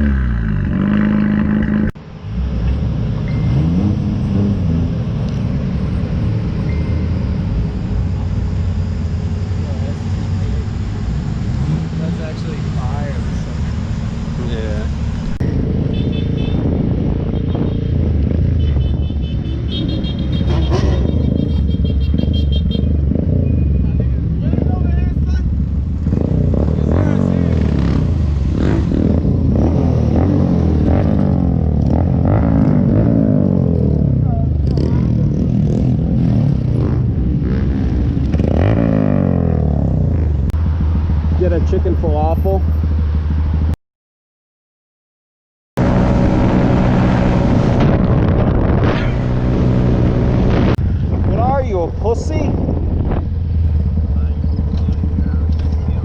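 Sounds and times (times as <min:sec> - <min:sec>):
vehicle engine low rumble: 0:00.0 - 0:43.8, 0:45.8 - 0:56.0
vehicle engine running: 0:51.8 - 0:56.0.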